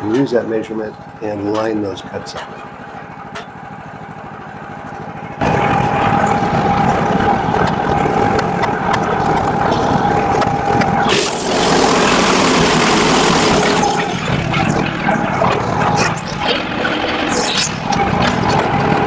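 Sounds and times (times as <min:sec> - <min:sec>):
gas engine running: 0:00.0 - 0:19.0
band blade whine: 0:05.4 - 0:19.0.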